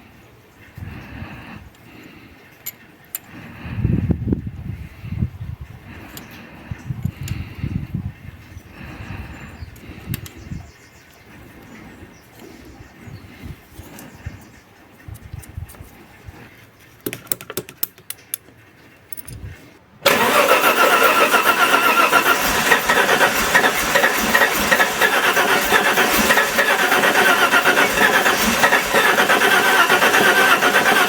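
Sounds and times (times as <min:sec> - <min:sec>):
car engine running with whine: 0:20.1 - 0:31.0.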